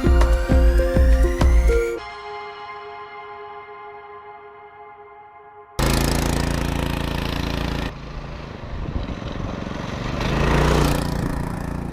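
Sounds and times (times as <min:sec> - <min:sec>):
small petrol engine revving: 0:05.8 - 0:11.9.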